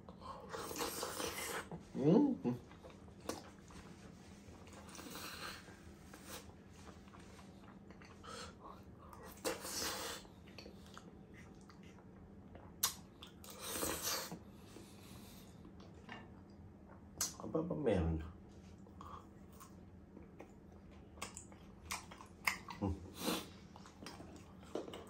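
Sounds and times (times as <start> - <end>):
person chewing wetly: 2.6 - 3.9, 4.5 - 14.4, 18.8 - 25.0.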